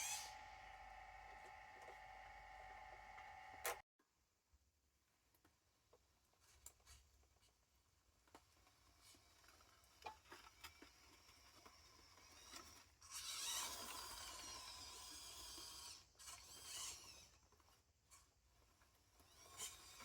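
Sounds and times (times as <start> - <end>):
small electric motor whirring: 0.0 - 3.8, 12.3 - 17.4, 19.1 - 20.0.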